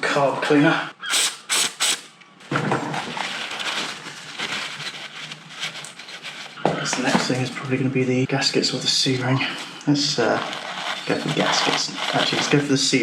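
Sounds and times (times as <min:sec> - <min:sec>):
aerosol can spraying: 0:01.1 - 0:02.1.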